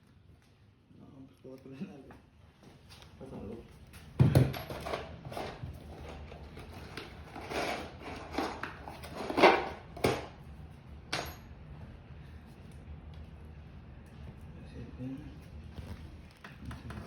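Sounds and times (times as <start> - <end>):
tools and wood clattering: 4.2 - 10.4.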